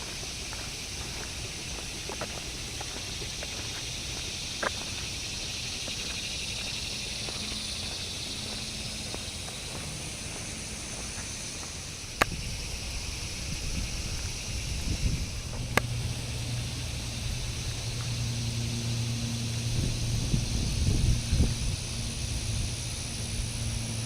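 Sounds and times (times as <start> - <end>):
high-pitched insect drone: 0.0 - 24.0
low microphone rumble: 12.3 - 24.0.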